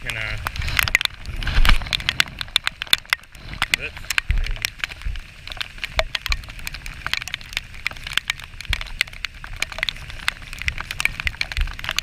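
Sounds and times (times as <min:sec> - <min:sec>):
heavy rain drops tapping: 0:00.0 - 0:12.0.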